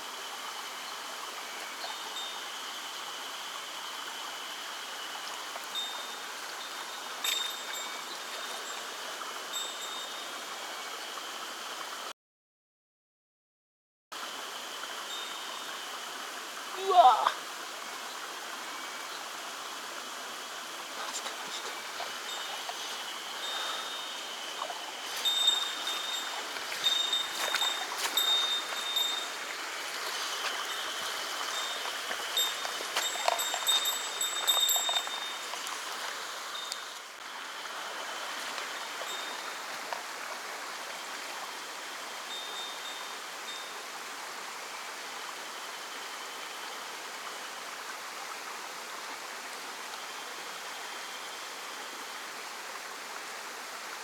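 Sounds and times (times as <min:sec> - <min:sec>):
stream flowing over rocks: 0:00.0 - 0:12.1, 0:14.2 - 0:54.0
high chime-like ringing tones: 0:05.8 - 0:08.8, 0:22.0 - 0:29.4, 0:30.4 - 0:35.7.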